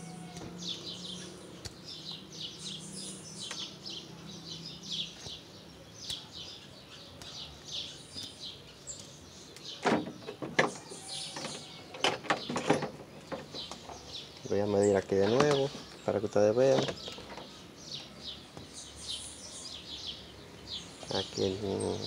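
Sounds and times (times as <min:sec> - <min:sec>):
small birds chirping: 0:00.0 - 0:22.0
sharp clicks and knocks: 0:09.0 - 0:14.1.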